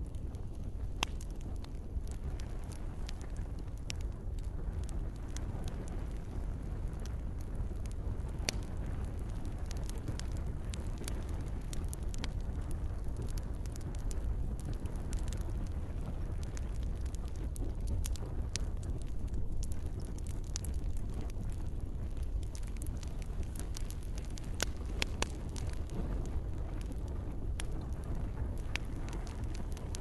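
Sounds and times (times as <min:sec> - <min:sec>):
campfire crackling and popping: 0:00.0 - 0:30.0
gentle rain: 0:00.0 - 0:30.0.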